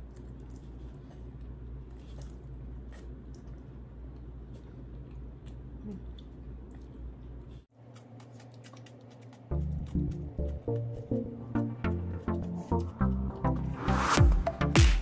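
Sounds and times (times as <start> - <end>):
person chewing: 0.0 - 11.2
steady low hum: 0.0 - 15.0.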